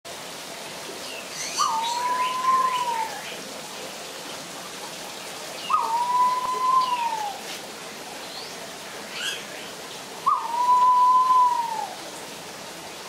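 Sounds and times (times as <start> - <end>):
steady background hiss: 0.1 - 13.0
bird's long whistle: 5.7 - 7.4, 10.3 - 12.0
higher bird chirps: 10.2 - 11.9.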